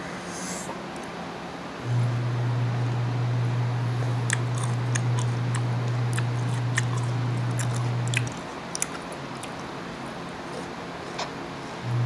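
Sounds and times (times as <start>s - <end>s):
steady low hum: 0.0s - 12.0s
crisp chewing clicks: 4.2s - 9.7s.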